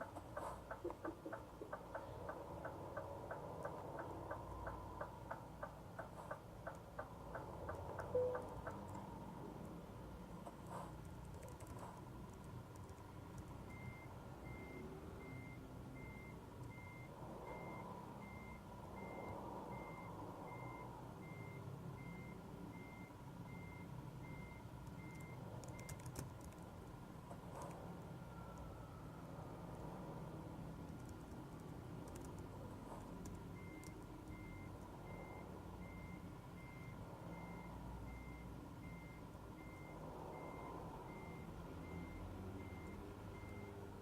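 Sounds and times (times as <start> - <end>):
high warning beeps: 7.9 - 8.8, 13.1 - 26.0, 33.5 - 43.9.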